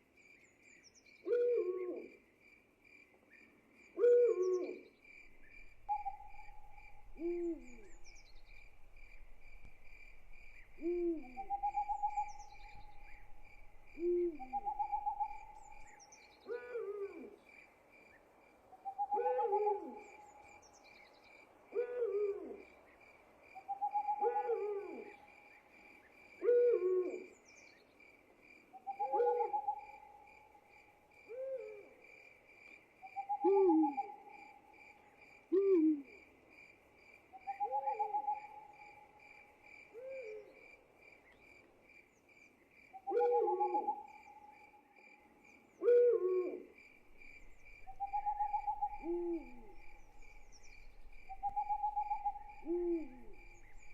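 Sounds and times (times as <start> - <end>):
crickets chirping: 0.0 - 53.9
owl hooting: 1.2 - 2.1, 4.0 - 4.8, 5.4 - 17.4, 18.8 - 20.4, 21.7 - 22.6, 23.7 - 25.3, 26.4 - 27.4, 28.8 - 30.2, 33.1 - 34.5, 35.5 - 36.2, 37.4 - 39.0, 43.0 - 44.6, 45.8 - 53.9.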